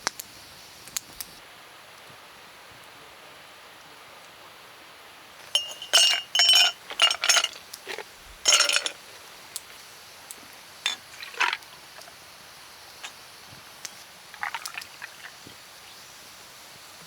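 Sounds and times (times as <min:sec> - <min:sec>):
glass clinking and rattling: 0:05.5 - 0:09.1, 0:10.8 - 0:11.7.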